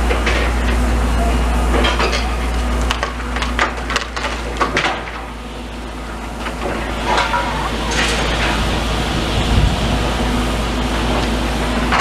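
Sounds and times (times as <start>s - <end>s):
steady low rumble: 0.0s - 12.0s
rubble and debris clattering: 1.7s - 10.1s, 11.0s - 12.0s
sharp knocks and clanks: 2.9s - 5.3s.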